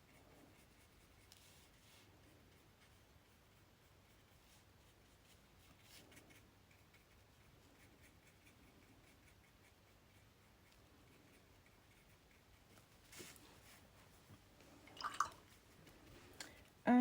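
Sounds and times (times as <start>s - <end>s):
paintbrush strokes on paper: 0.0s - 16.8s.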